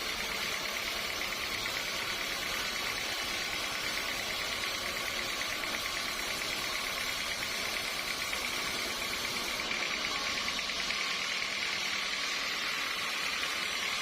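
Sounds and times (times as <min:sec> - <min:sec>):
sawmill machinery hum: 0:00.0 - 0:14.0.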